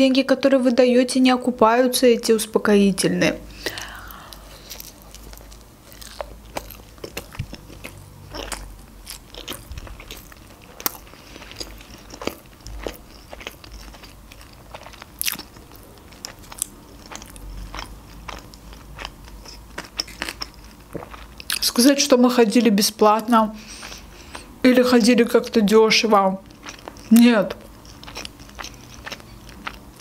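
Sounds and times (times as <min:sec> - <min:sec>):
person chewing food: 0:03.6 - 0:21.6, 0:23.6 - 0:24.6, 0:26.4 - 0:30.0.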